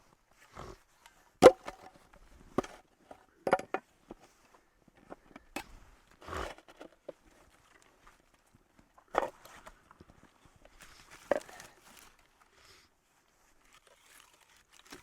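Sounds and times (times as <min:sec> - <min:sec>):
sticks knocking and cracking: 0:01.4 - 0:02.0.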